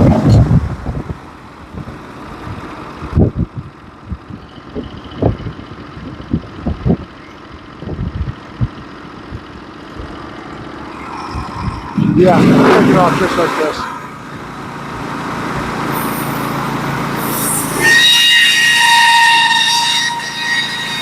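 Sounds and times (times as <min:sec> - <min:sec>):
engine running low: 0:00.0 - 0:21.0
sawmill running and cutting: 0:12.0 - 0:21.0.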